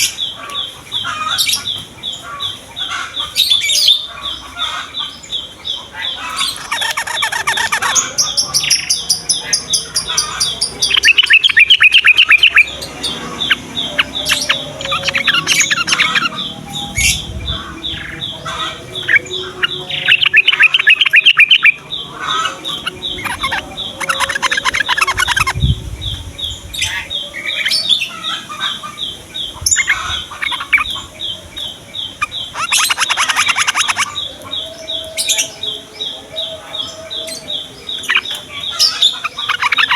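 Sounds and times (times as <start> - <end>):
bulbuls chattering song: 0.0 - 39.9
high repeated bird chirps: 3.2 - 27.8, 29.4 - 35.8.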